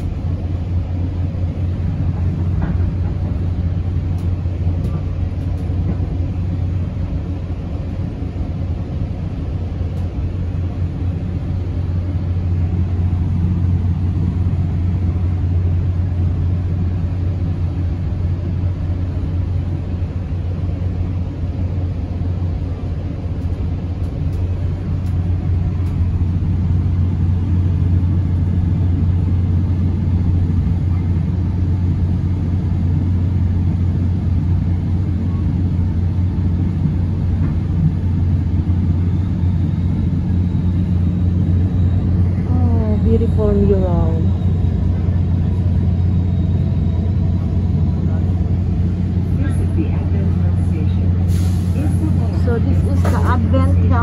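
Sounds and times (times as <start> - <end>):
train coach rumbling: 0.0 - 54.0
deep hum: 24.4 - 51.3.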